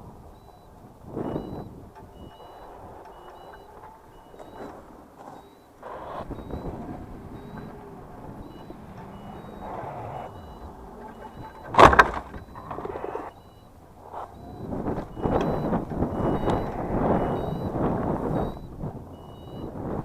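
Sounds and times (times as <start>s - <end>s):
reverse warning beeper: 0.3s - 20.0s
machine noise: 1.1s - 18.7s
loud clattering thump: 9.5s - 12.9s.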